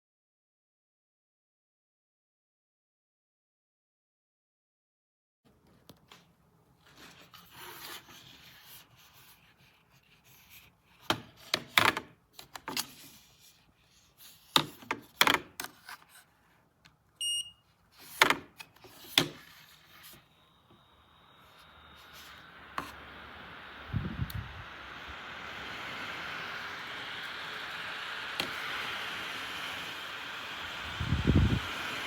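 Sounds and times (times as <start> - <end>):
short electronic beep: 17.2 - 17.6.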